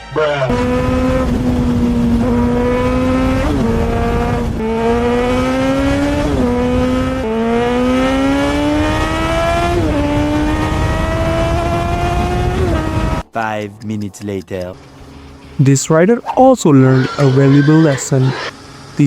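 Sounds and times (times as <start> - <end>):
motorcycle engine accelerating: 0.5 - 13.3, 17.0 - 19.0.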